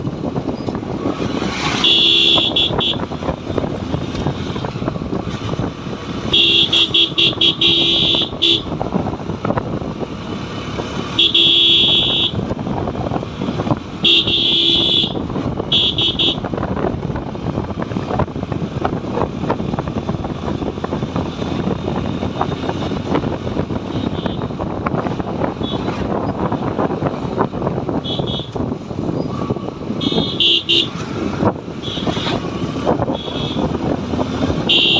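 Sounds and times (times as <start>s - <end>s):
motorcycle engine: 0.0s - 34.9s
road and wind noise: 0.0s - 34.9s
horn honking: 1.7s - 3.1s, 6.3s - 8.8s, 11.2s - 12.5s, 14.0s - 16.5s, 23.8s - 24.5s, 28.0s - 28.6s, 30.0s - 31.0s, 31.8s - 32.4s, 33.0s - 33.8s, 34.6s - 34.9s.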